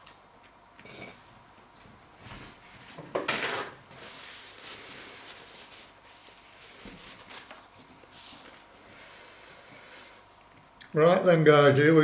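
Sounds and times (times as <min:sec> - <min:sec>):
rubbing and rustling: 0:02.5 - 0:08.7.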